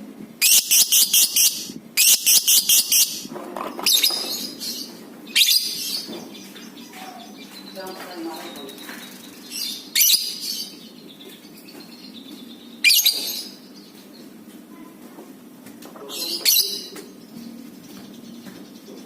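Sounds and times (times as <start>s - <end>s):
lovebird shrill chattering calls: 0.4s - 6.1s, 9.2s - 10.7s.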